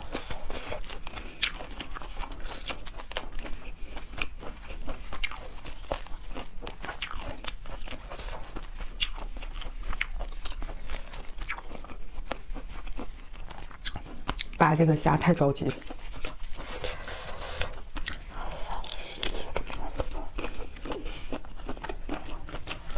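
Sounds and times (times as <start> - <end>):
crunching and chewing seafood: 0.0 - 22.9.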